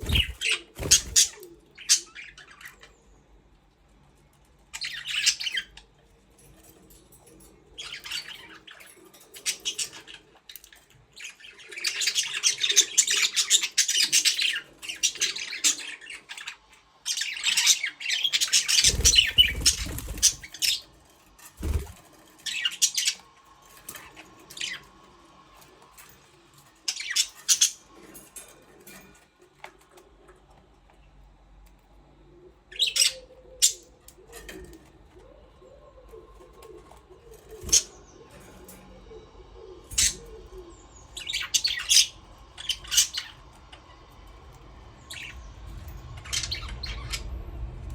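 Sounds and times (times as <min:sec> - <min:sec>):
budgerigars chirping: 0:00.0 - 0:02.7, 0:11.2 - 0:20.8.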